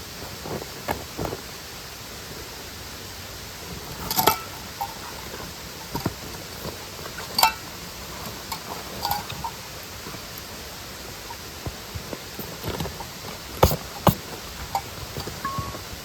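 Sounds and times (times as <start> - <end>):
mountain stream and waterfall rushing: 0.0 - 16.0
metallic clinks of camp gear: 3.9 - 10.5, 14.7 - 16.0.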